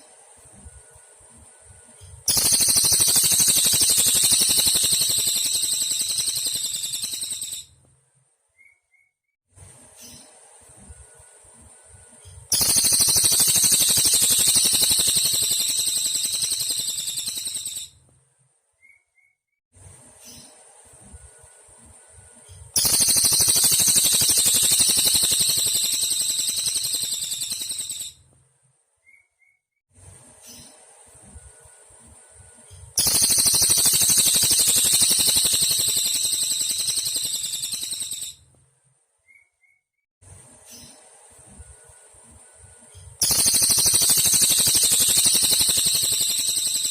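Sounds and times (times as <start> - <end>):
bird singing rapid high trill: 2.3 - 7.7, 12.5 - 17.9, 22.8 - 28.2, 33.0 - 38.4, 43.2 - 46.9
tiny bird chirp: 2.3 - 7.7, 12.5 - 17.9, 22.8 - 28.2, 33.0 - 38.4, 43.2 - 46.9.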